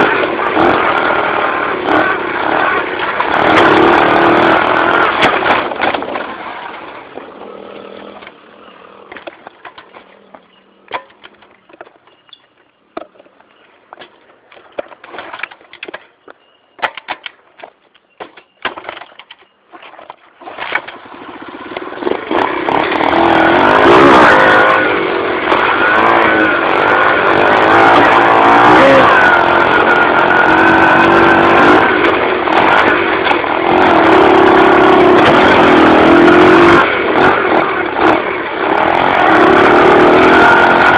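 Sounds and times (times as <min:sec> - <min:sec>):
dirt bike engine revving: 0:00.0 - 0:16.0, 0:20.3 - 0:40.9
clicks and knocks: 0:09.1 - 0:21.0.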